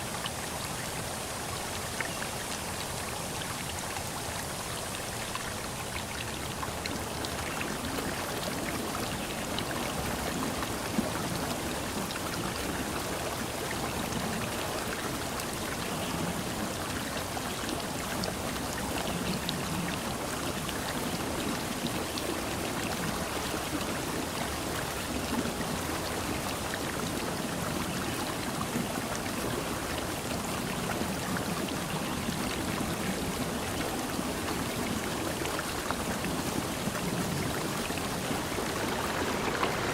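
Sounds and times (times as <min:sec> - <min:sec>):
water rushing: 0:00.0 - 0:39.9
water dripping and pattering: 0:00.1 - 0:39.9.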